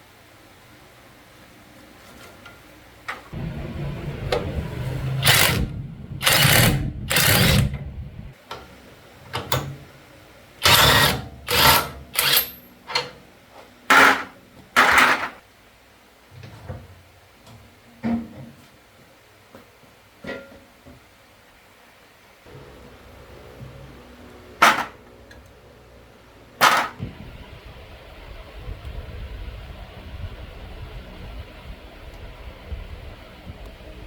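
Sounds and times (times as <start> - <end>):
small motor running in harsh bursts: 5.0 - 7.8, 10.6 - 12.6.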